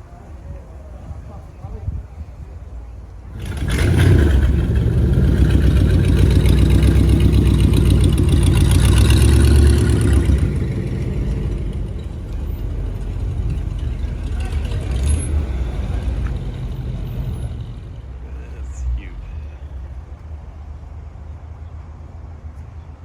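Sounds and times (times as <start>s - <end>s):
car engine with loud exhaust: 2.4s - 22.6s.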